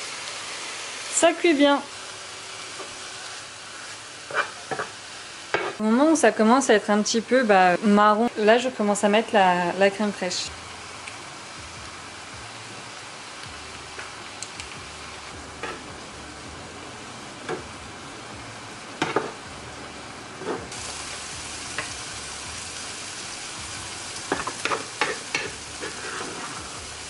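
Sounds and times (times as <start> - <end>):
leeks sizzling in a pan: 0.0 - 27.0
scraping stirring strokes: 24.6 - 26.8.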